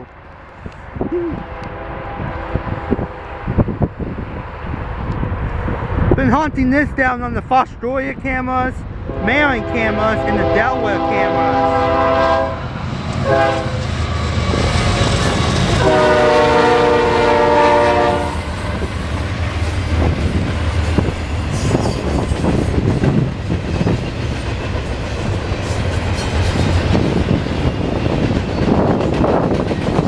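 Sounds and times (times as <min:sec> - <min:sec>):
locomotive air horn blasts: 0:01.4 - 0:03.7, 0:09.1 - 0:12.6, 0:13.2 - 0:13.8, 0:15.8 - 0:18.5
train wheels clacking on rails: 0:12.9 - 0:30.0.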